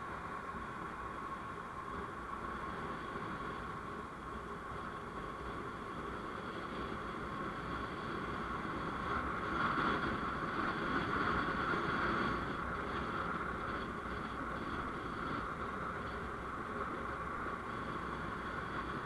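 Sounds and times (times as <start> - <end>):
vehicle road and engine noise: 0.0 - 19.0.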